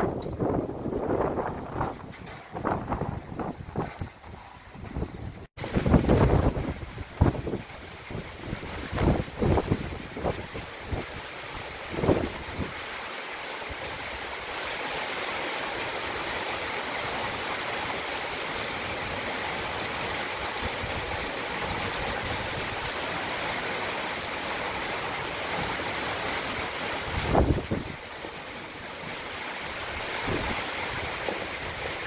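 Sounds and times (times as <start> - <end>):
wind gust on microphone: 0.0 - 13.0, 18.8 - 32.0
heavy rain pouring: 4.9 - 32.0.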